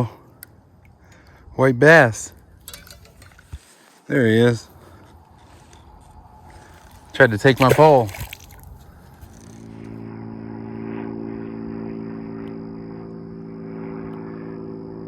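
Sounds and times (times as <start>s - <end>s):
faint high whine: 0.0s - 15.0s
low engine-like hum: 4.6s - 15.0s.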